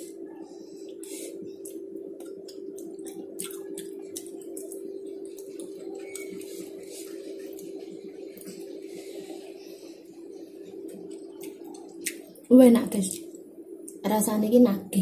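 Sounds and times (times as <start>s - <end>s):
steady hum: 0.0s - 15.0s
wet chewing and lip-smacking: 0.8s - 9.5s, 10.1s - 12.5s.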